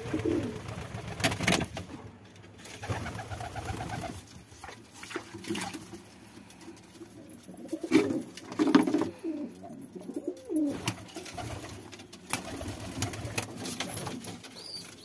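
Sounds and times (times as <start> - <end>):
pigeons cooing: 0.0 - 0.9, 6.7 - 15.0.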